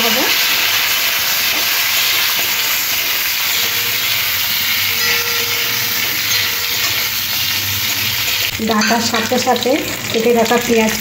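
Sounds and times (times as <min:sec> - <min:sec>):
vegetables sizzling in hot oil: 0:00.0 - 0:11.0
spatula turning food: 0:00.4 - 0:11.0.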